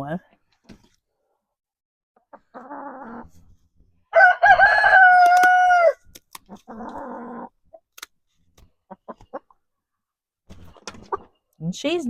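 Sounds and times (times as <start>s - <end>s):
rooster crowing: 4.1s - 6.0s.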